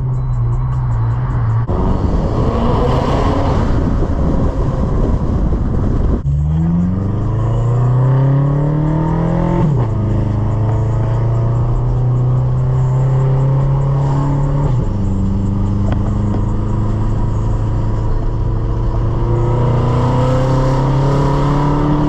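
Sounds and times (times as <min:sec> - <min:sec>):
car exhaust under acceleration: 0:00.0 - 0:22.0.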